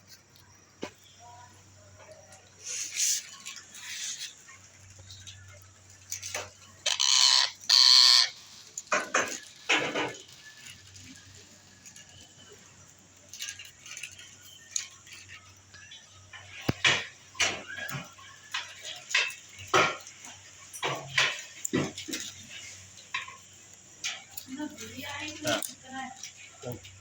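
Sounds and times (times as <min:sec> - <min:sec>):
parrot squawking: 0:06.8 - 0:08.4.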